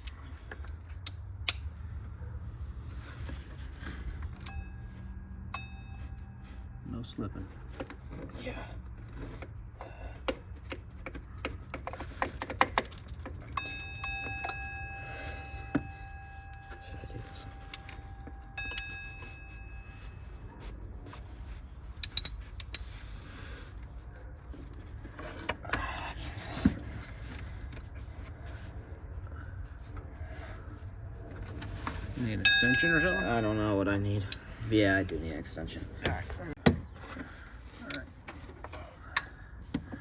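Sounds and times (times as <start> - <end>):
low steady hum: 0.0 - 11.3, 13.0 - 38.4
steady ringing tone: 3.7 - 8.3, 13.3 - 22.3, 31.9 - 35.7
metal tools clinking: 3.8 - 8.4, 11.7 - 23.1, 31.6 - 35.7
hand ratchet clicking: 22.0 - 22.9.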